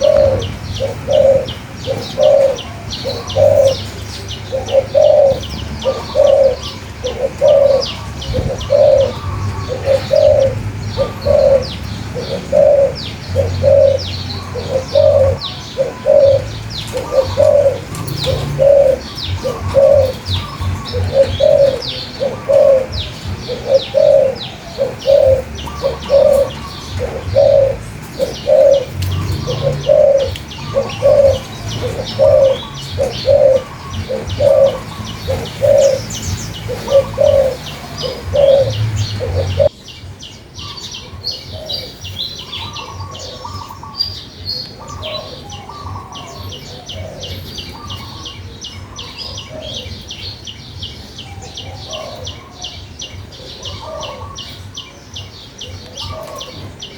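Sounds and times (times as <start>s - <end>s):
low hooting bird note: 0.0s - 39.7s.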